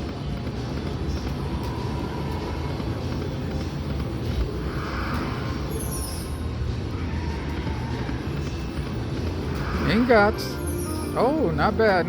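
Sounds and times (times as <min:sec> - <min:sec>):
slot machine game music: 0:09.8 - 0:12.0.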